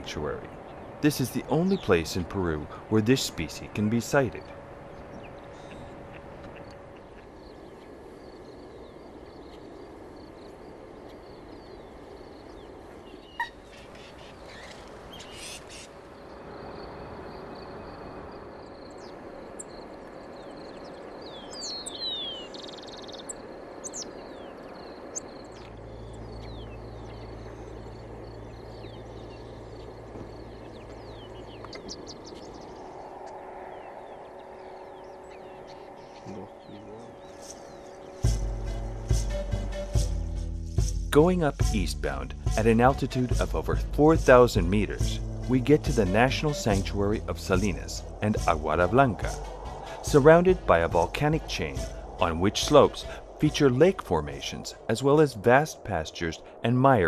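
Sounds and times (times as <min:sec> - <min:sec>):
birds chirping: 0:00.0 - 0:40.4, 0:41.2 - 0:57.0
low hum: 0:22.7 - 0:56.7.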